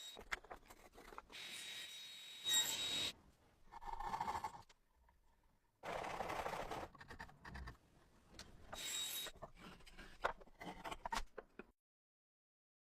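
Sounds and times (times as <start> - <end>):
hand tools scraping on wood: 9.0 - 11.2.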